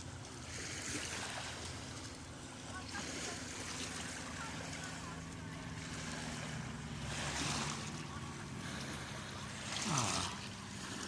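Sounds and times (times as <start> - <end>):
distant aircraft drone: 0.0 - 11.0
small waves washing ashore: 0.0 - 11.0.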